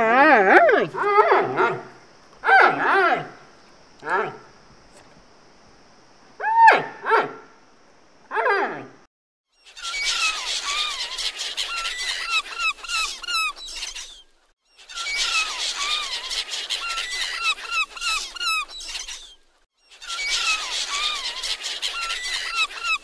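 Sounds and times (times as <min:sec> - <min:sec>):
seabirds squealing calls: 0:09.7 - 0:14.2, 0:14.8 - 0:23.0.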